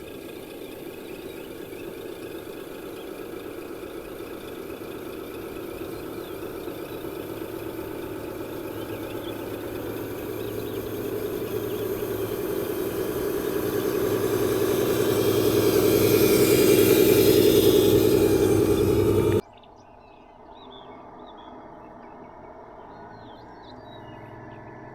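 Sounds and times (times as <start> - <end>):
radio-controlled vehicle running: 0.0 - 19.4.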